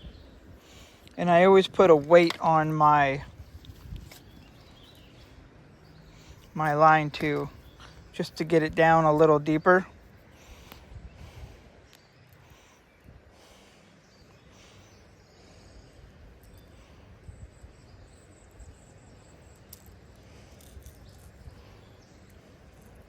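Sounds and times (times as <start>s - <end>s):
wind rumble on microphone: 0.0s - 2.1s, 3.0s - 5.5s, 9.9s - 12.0s, 16.0s - 19.0s.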